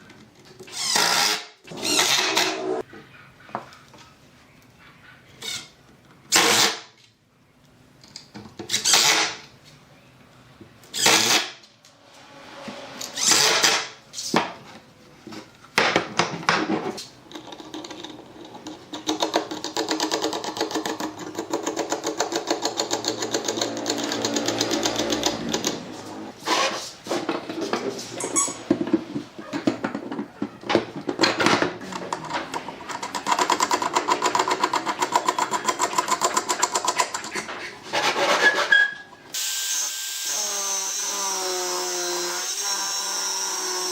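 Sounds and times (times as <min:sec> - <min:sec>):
small motor machine rattling: 0:17.4 - 0:26.0.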